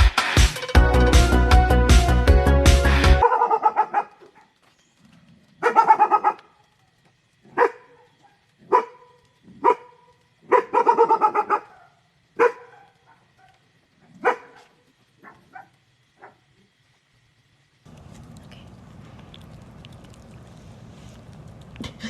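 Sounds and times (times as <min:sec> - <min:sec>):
dog barking: 0:03.2 - 0:04.6, 0:05.6 - 0:06.6, 0:07.4 - 0:16.5.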